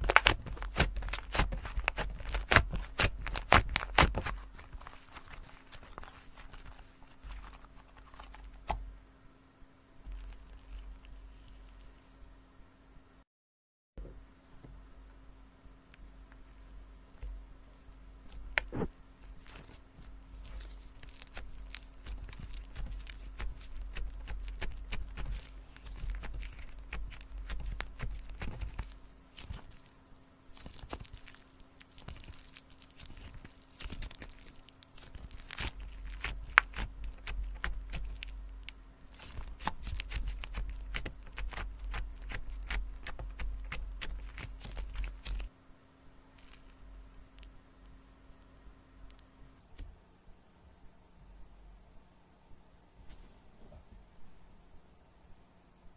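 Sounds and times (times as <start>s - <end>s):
slime squished by hand: 0.0s - 8.8s, 18.3s - 45.5s.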